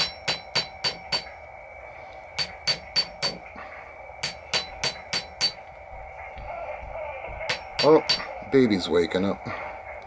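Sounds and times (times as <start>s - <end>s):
hammer tapping metal: 0.0s - 1.4s, 2.4s - 3.6s, 4.2s - 5.8s, 7.5s - 8.4s.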